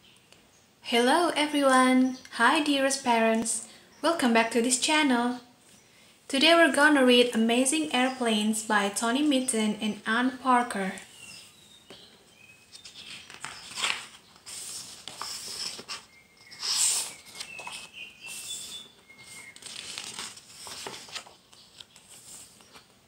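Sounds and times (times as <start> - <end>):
paper rustling and crinkling: 12.7 - 22.9.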